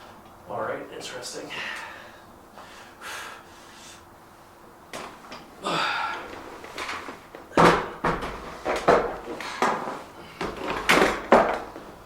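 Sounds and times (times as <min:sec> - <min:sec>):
weight equipment knocks and clanks: 0:07.5 - 0:11.9.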